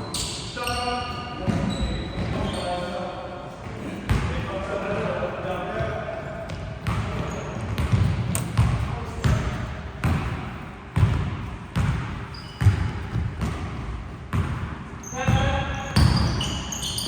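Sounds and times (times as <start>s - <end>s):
basketball bouncing on court: 4.1s - 4.3s, 6.5s - 17.0s.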